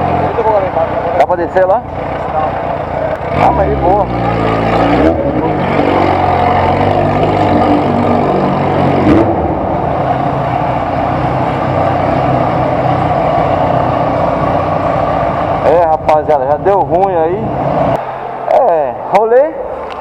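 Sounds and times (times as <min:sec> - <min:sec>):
motorcycle engine running: 0:00.0 - 0:18.0
rushing wind: 0:05.4 - 0:20.0.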